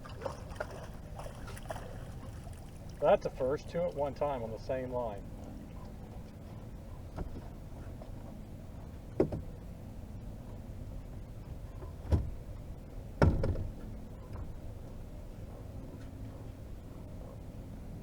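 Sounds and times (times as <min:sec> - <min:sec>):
dull knocks in a boat: 0:05.7 - 0:09.7, 0:11.5 - 0:14.7.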